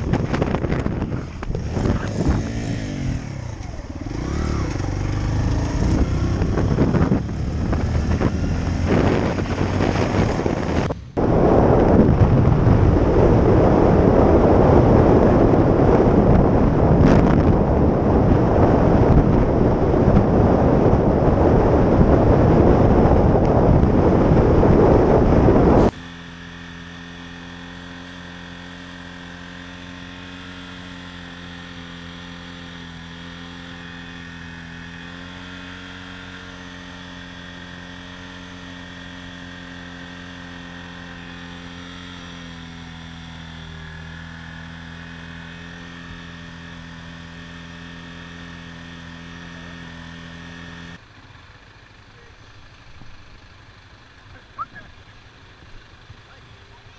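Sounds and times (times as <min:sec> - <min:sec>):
loud wind rush on microphone: 0:00.0 - 0:04.4, 0:05.4 - 0:26.1.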